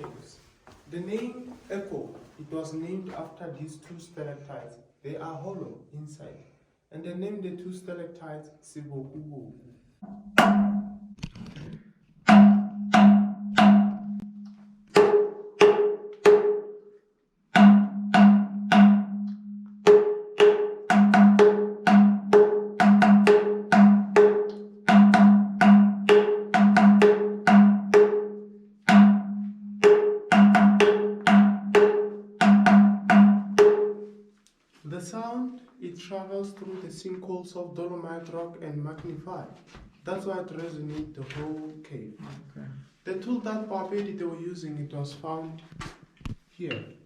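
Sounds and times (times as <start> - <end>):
stalactites struck ringing: 10.0 - 11.2.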